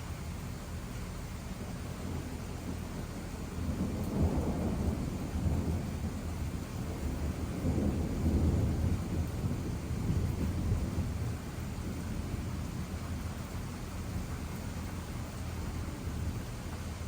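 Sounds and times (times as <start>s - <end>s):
faint steady hiss: 0.0s - 17.0s
thunder rumbling: 0.0s - 17.0s.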